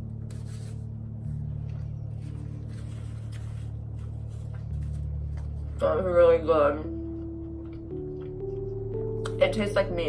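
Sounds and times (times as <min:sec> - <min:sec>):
low steady hum: 0:00.0 - 0:10.0
person chewing food: 0:07.0 - 0:08.9.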